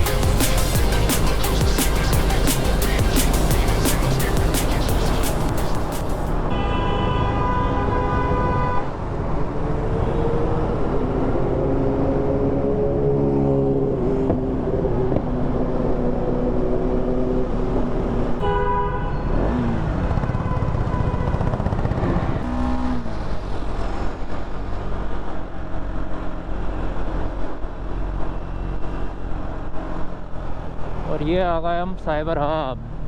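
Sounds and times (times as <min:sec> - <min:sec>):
vehicle horn honking: 0:06.5 - 0:08.9, 0:18.4 - 0:19.4
motorcycle engine running: 0:19.9 - 0:22.6.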